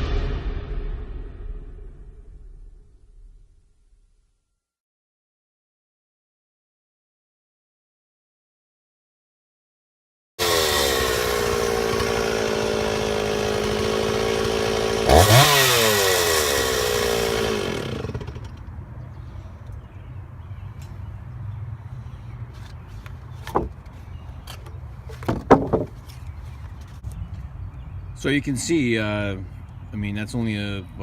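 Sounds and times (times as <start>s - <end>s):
chainsaw cutting through log: 10.4s - 18.6s.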